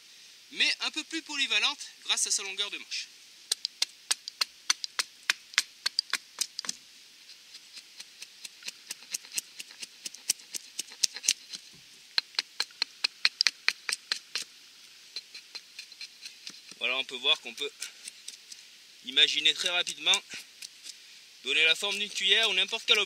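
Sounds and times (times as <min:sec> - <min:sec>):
hatchet carving wood: 0:03.5 - 0:14.5, 0:15.2 - 0:16.8, 0:17.5 - 0:18.6.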